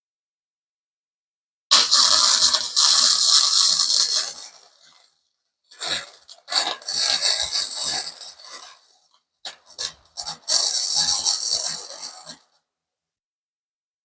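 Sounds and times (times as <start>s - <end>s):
welding arc crackling on metal: 1.7s - 5.1s, 5.8s - 12.4s.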